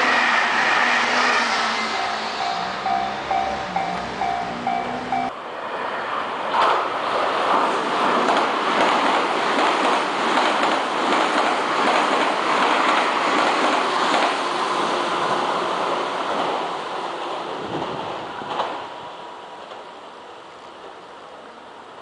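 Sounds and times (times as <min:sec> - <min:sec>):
electric train passing: 0:00.0 - 0:22.0
wheels clacking over rail joints: 0:07.5 - 0:14.6.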